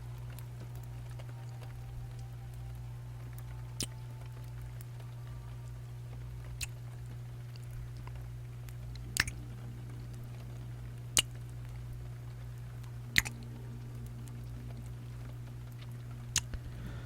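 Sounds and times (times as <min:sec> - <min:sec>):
steady low hum: 0:00.0 - 0:17.0
wet kissing lip smacks: 0:09.2 - 0:09.4, 0:13.2 - 0:13.4.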